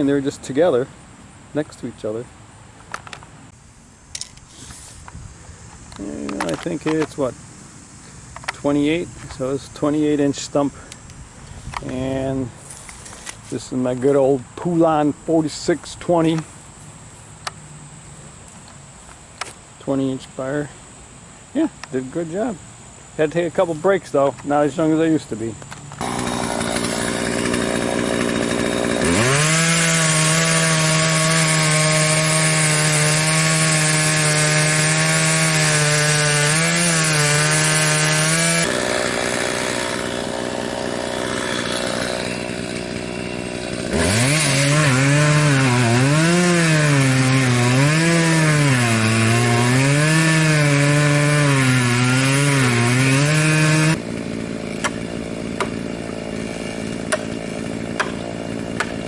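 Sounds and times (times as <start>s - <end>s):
chainsaw cutting wood: 11.6s - 14.9s, 24.4s - 59.0s.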